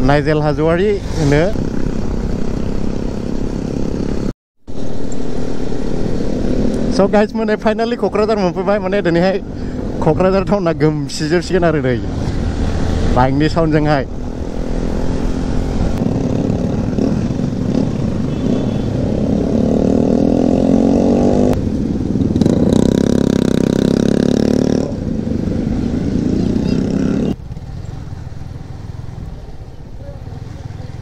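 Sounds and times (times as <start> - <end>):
motorcycle engine accelerating: 0.0 - 7.2, 11.5 - 31.0.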